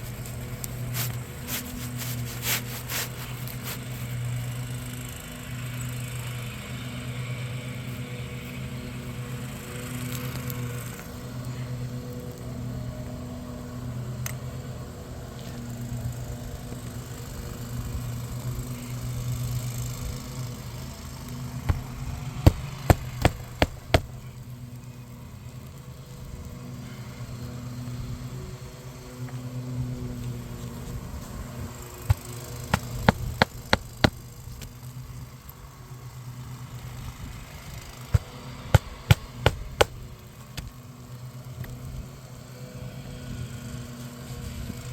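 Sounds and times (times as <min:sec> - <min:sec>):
hammer blows driving nails: 0:21.7 - 0:24.2, 0:32.1 - 0:34.2, 0:38.2 - 0:40.0.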